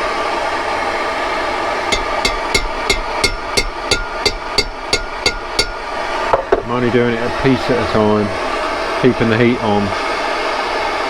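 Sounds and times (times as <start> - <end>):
hammer tapping a chisel: 2.0 - 6.0.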